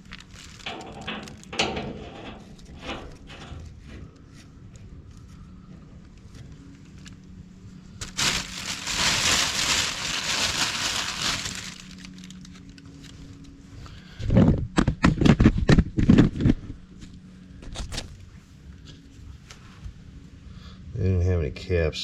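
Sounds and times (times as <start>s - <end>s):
bag rustling and crinkling: 0.0s - 3.8s, 8.0s - 13.1s
metal parts knocking and clattering: 0.4s - 3.8s.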